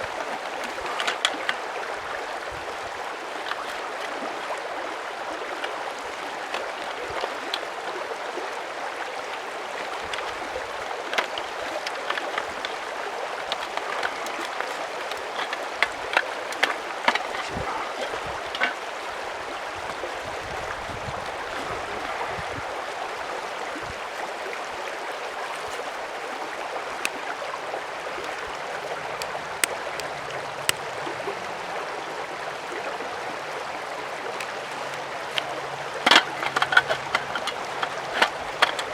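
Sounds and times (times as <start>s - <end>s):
mountain stream rushing: 0.0s - 38.9s
sharp clicks and knocks: 13.5s - 17.8s, 18.4s - 18.8s, 35.3s - 38.9s.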